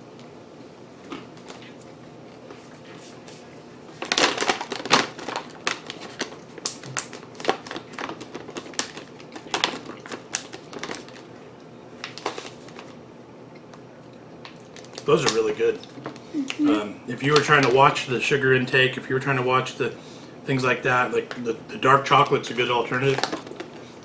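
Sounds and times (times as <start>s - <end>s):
chewing crunchy food: 4.0s - 16.2s.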